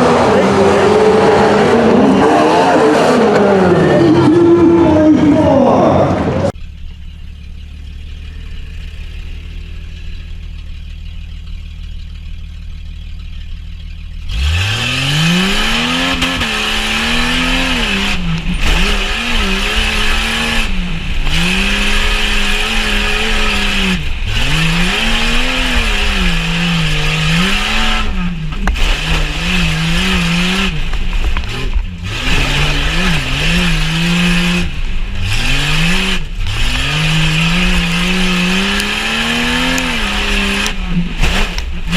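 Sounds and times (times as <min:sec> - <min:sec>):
car engine idling and revving: 0:00.0 - 0:41.9.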